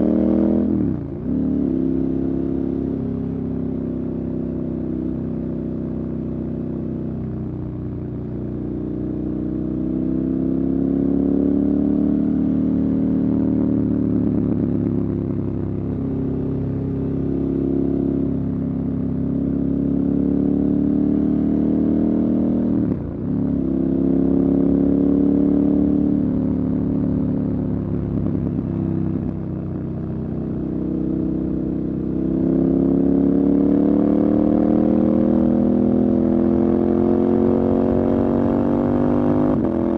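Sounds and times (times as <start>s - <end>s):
motorcycle engine revving: 30.5s - 39.9s.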